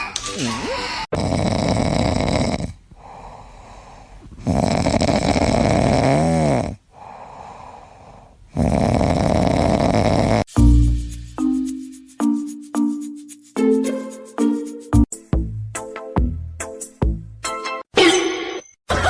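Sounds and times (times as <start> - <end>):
pet snoring: 1.1 - 2.8, 4.4 - 6.8, 8.5 - 10.5
quiet breaths: 1.7 - 5.9, 6.7 - 10.2.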